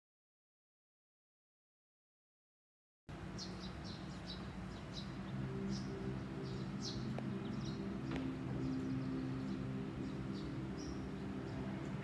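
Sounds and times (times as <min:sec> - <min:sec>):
low steady hum: 0:03.1 - 0:12.0
small birds chirping: 0:03.1 - 0:12.0.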